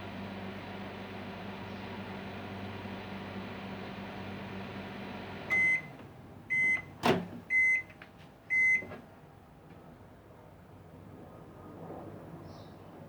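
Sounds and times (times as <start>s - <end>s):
microwave oven humming: 0.0s - 7.9s
microwave beeps: 5.4s - 7.9s, 8.5s - 8.9s.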